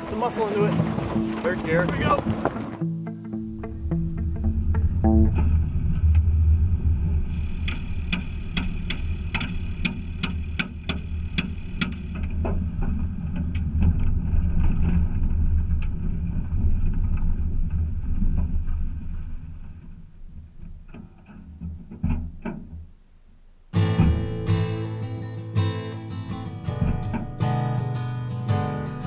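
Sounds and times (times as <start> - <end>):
low rumble of car rolling: 0.0 - 25.0, 26.3 - 29.0
engine popping without starting: 0.7 - 23.0.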